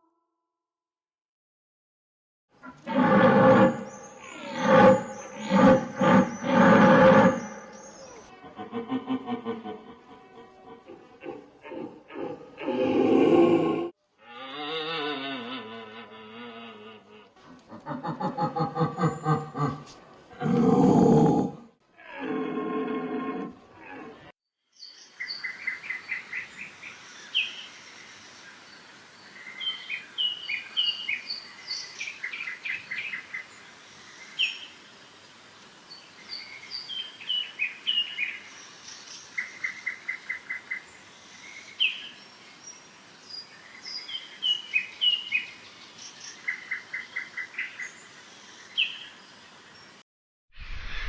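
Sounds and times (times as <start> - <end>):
high hiss of insects: 24.8 - 39.7, 40.7 - 46.4, 47.8 - 50.0.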